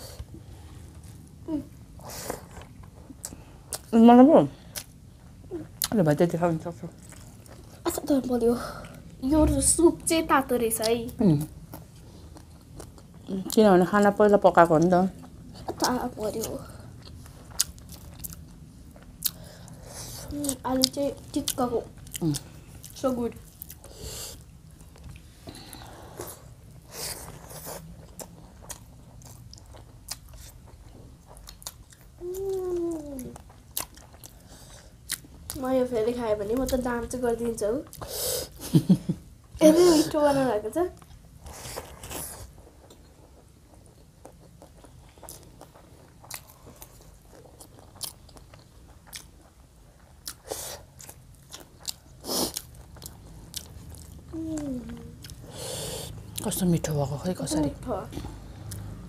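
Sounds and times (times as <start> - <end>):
people chewing and crunching food: 0.0 - 9.8, 10.7 - 59.0
wet chewing and mouth clicks: 27.2 - 35.6, 41.0 - 56.5.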